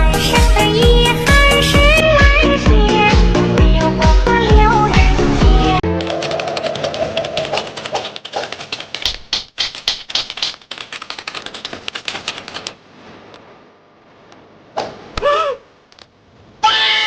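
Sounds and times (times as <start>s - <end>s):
rapid clicking: 5.8s - 12.8s
short pitched cry: 15.2s - 15.8s, 16.6s - 17.0s.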